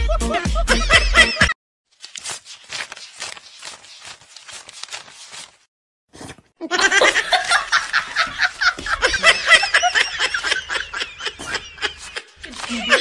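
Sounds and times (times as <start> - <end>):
loud laughter: 0.0 - 1.6, 6.6 - 13.0.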